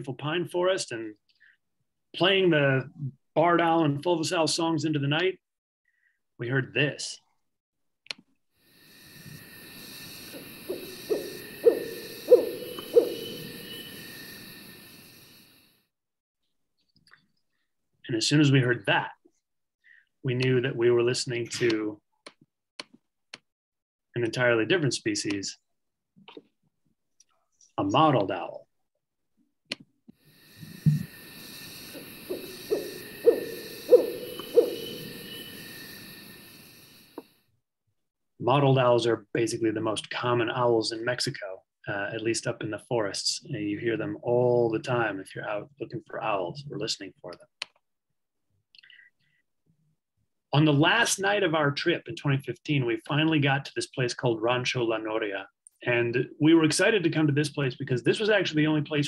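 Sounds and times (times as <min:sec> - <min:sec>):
insect chorus: 0:08.6 - 0:15.8, 0:30.2 - 0:37.4
high background hiss: 0:08.7 - 0:15.7, 0:30.3 - 0:37.2
owl hooting: 0:08.7 - 0:15.7, 0:30.3 - 0:37.3.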